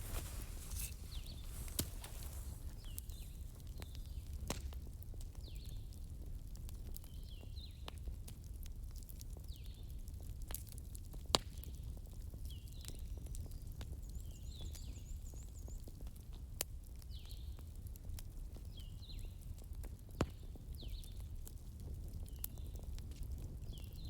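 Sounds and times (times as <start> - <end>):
wood fire crackling: 0.0 - 7.1.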